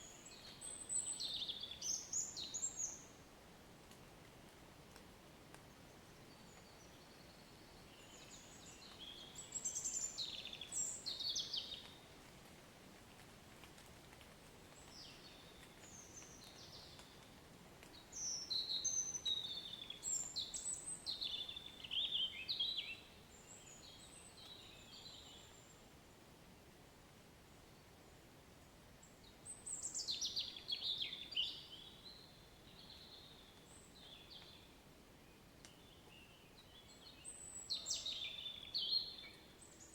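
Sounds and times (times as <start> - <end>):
light rain hiss: 0.0 - 39.9
songbird chirping and warbling: 35.3 - 39.9.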